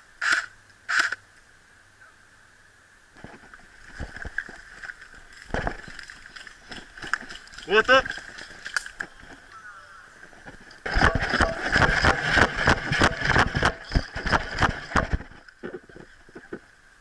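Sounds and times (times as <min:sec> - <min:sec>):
airsoft rifle rapid burst: 0:00.2 - 0:01.2, 0:10.8 - 0:15.2
scattered airsoft shots: 0:10.8 - 0:15.2.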